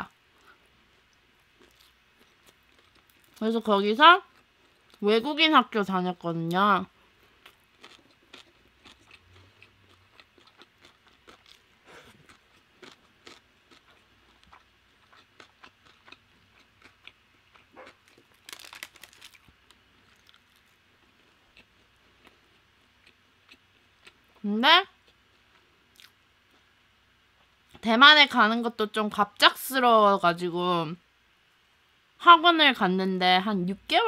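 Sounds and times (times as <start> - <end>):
chewing crispy fried chicken: 0.4 - 3.5, 4.1 - 5.1, 7.1 - 26.8.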